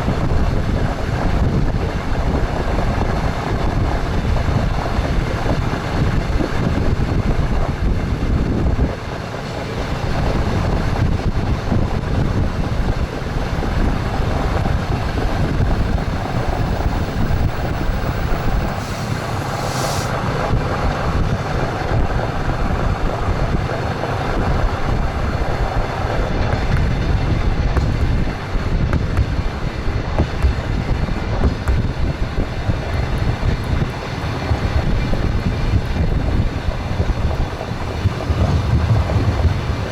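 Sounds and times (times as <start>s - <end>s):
train running rumble: 0.0s - 39.9s
train wheels clattering on rails: 0.0s - 39.9s
short hiss: 18.7s - 20.2s.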